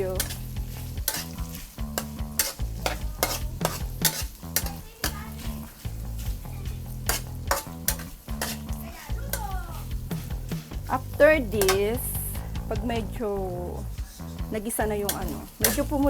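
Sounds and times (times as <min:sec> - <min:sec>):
fat sizzling in a pan: 0:00.0 - 0:16.0
utensil scraping against pan: 0:00.0 - 0:16.0.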